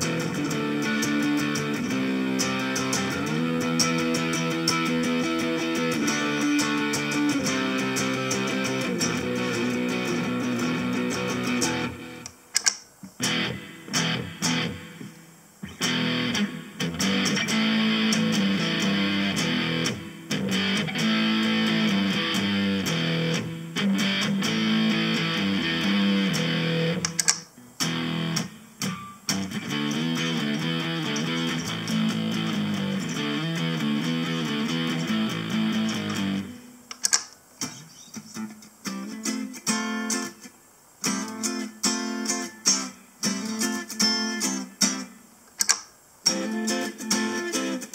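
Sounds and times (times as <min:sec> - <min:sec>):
electric guitar chords: 0:00.0 - 0:12.4, 0:13.2 - 0:36.9, 0:46.3 - 0:47.9.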